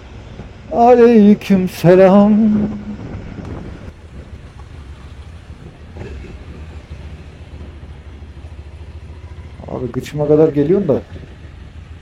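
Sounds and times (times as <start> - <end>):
wind noise on microphone: 2.0 - 7.0
motorcycle engine running: 2.3 - 12.0.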